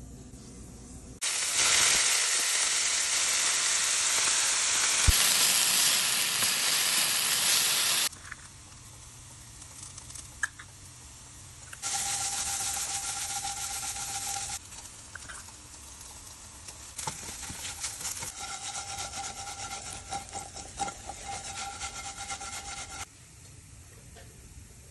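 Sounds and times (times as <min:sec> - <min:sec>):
food sizzling in hot oil: 0:01.2 - 0:11.2, 0:11.8 - 0:23.1
spatula stirring and scraping: 0:11.8 - 0:23.1.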